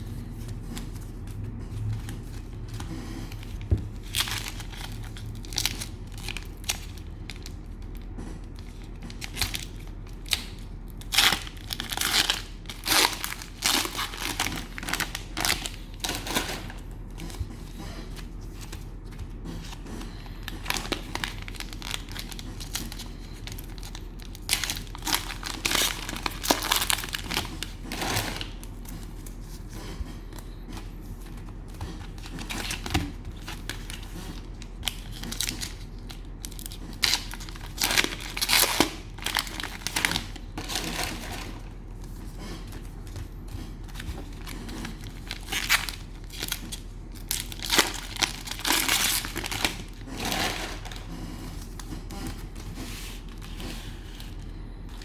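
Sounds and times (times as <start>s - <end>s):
cellophane wrappers crinkling: 0.1s - 55.0s.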